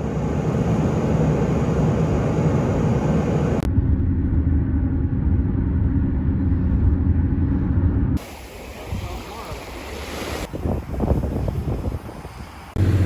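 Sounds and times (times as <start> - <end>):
boat engine rumble: 0.0 - 13.0
rush of wind and water: 8.2 - 13.0.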